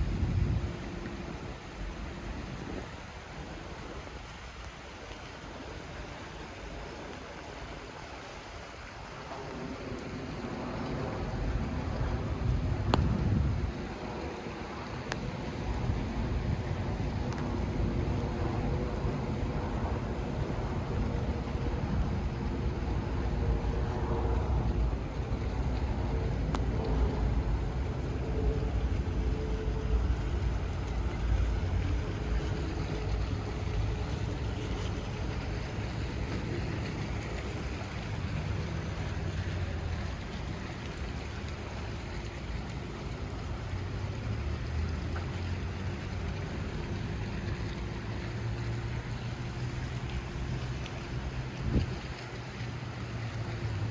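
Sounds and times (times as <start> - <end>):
faint engine hum: 0.0 - 53.9
rain hiss: 0.0 - 53.9
traffic rumble: 0.0 - 53.9
wind: 0.0 - 53.9.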